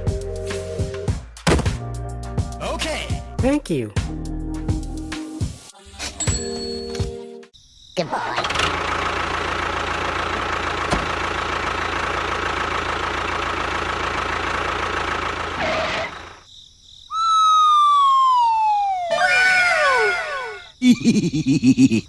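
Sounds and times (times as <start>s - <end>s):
downward sliding whistle tone: 17.1s - 20.7s.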